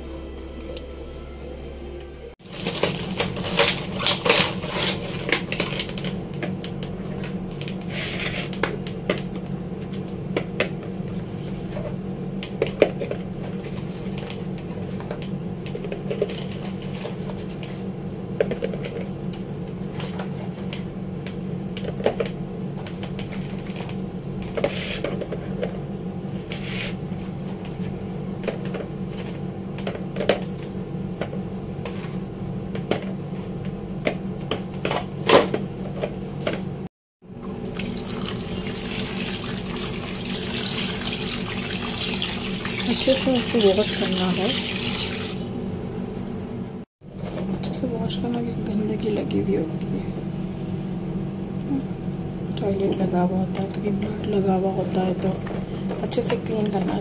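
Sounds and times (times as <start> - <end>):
steady low hum: 45.4 - 57.0.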